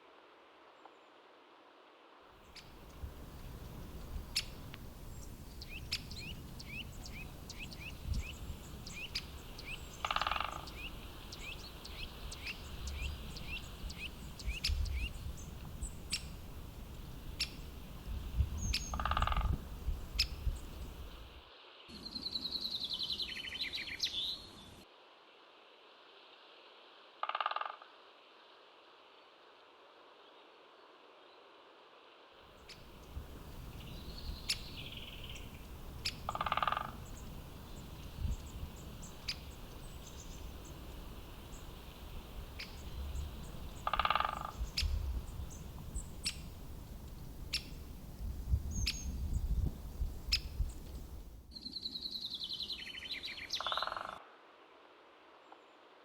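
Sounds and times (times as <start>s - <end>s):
bird calls: 2.5s - 21.3s, 32.6s - 54.2s
higher bird chirps: 2.6s - 21.3s, 32.7s - 54.2s.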